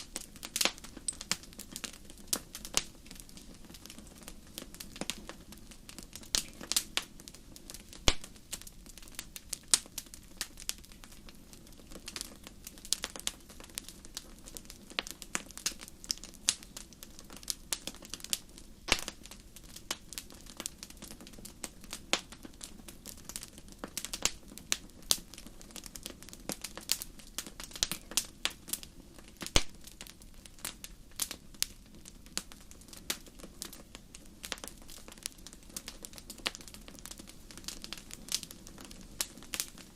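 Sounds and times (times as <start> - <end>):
fireplace fire crackling and popping: 0.0 - 39.9.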